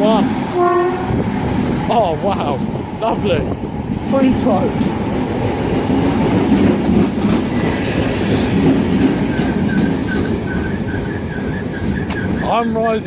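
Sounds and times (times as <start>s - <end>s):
train rumble with wheels clacking: 0.0s - 13.0s.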